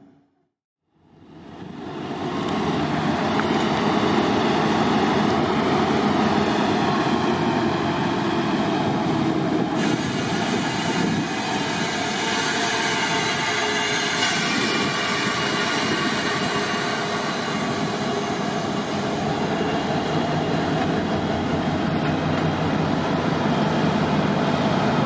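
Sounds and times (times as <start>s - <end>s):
diesel train running: 1.0s - 25.0s.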